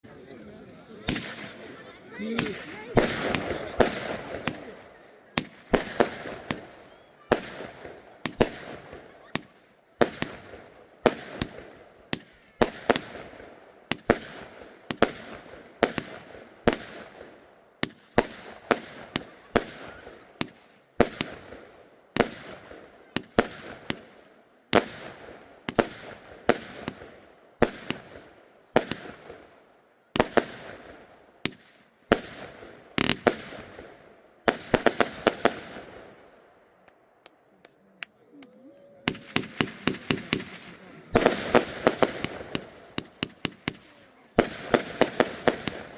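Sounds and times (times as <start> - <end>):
firework cake bangs: 1.0 - 17.2, 39.1 - 45.9.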